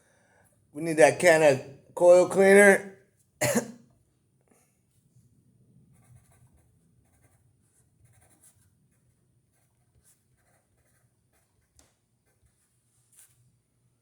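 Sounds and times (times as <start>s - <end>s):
pen scratching on paper: 5.9s - 13.4s.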